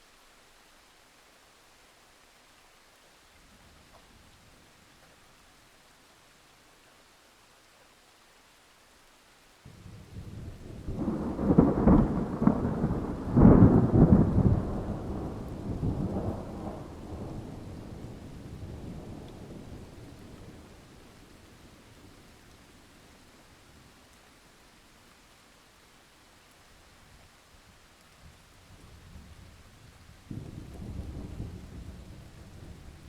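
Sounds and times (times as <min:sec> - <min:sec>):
steady rain: 0:00.0 - 0:33.0
thunder rumbling: 0:09.7 - 0:21.1, 0:30.3 - 0:33.0.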